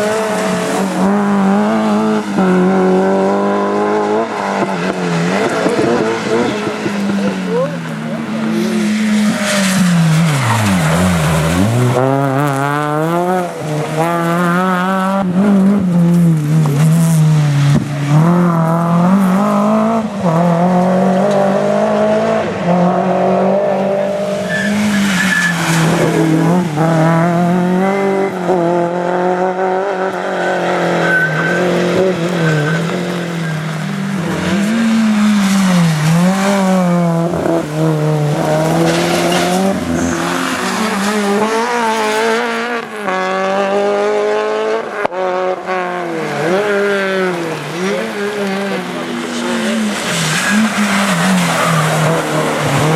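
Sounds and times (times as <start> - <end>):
rally car engines revving: 0.0 - 52.9
tyres squealing: 47.8 - 52.9.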